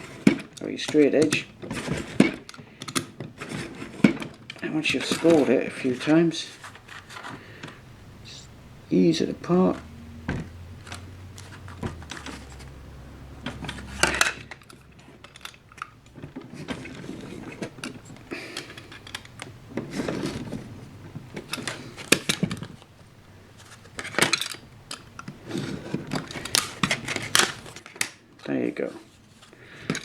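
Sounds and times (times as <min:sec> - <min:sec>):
plastic sheet crackling and clicking: 0:23.6 - 0:28.6.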